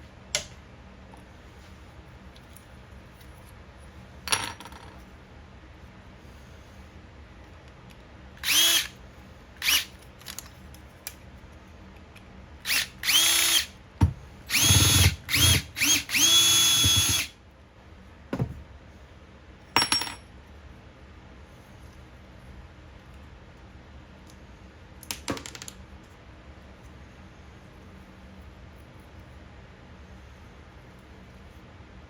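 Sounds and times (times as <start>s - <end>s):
power drill spinning up: 8.4s - 9.0s, 9.6s - 9.9s, 12.7s - 13.7s, 14.5s - 17.3s.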